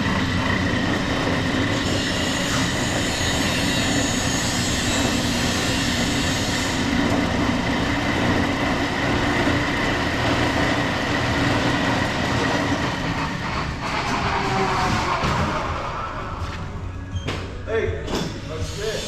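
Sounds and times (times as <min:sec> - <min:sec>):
band saw whirring with whine: 0:00.0 - 0:17.1.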